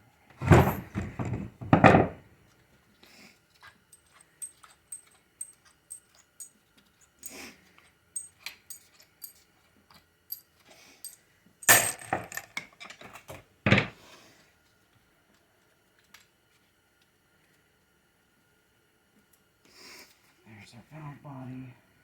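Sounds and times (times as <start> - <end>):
metal parts clinking: 3.9 - 6.6, 8.2 - 9.5, 10.3 - 13.0
metal clanks: 11.6 - 12.5.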